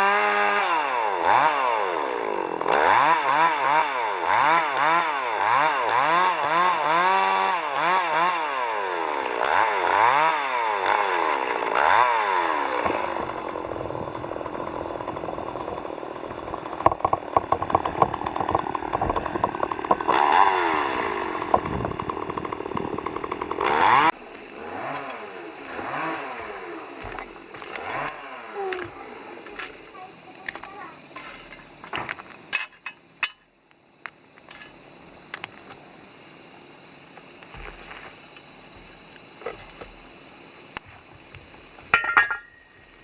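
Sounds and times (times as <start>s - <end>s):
chainsaw revving: 0.0s - 30.4s.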